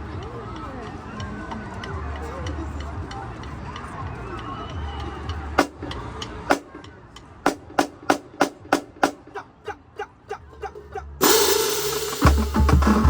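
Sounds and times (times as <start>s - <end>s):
drum strikes: 5.6s - 9.4s, 11.2s - 13.0s
drumline playing with crash: 5.6s - 9.4s, 10.6s - 13.0s.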